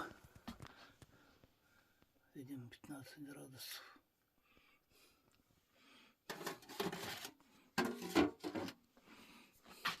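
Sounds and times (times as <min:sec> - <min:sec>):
scraping handling noises: 0:06.3 - 0:08.8.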